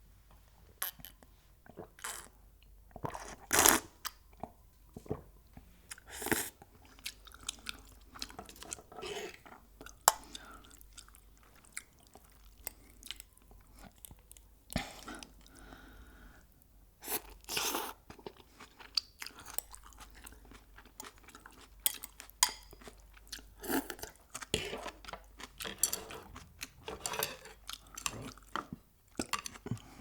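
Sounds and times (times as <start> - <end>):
chewing crispy fried chicken: 17.4 - 30.0.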